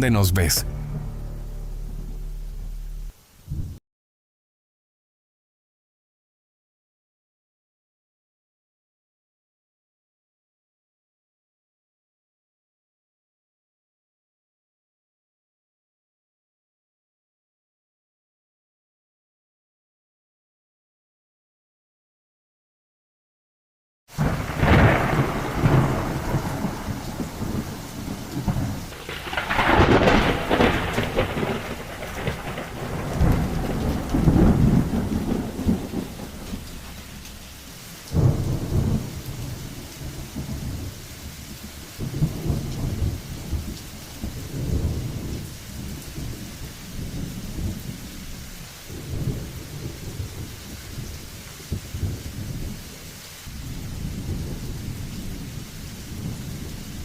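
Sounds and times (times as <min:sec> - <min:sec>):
steady rain: 0:00.0 - 0:03.8, 0:24.1 - 0:57.0
thunder rolling: 0:00.0 - 0:03.8, 0:24.2 - 0:48.0.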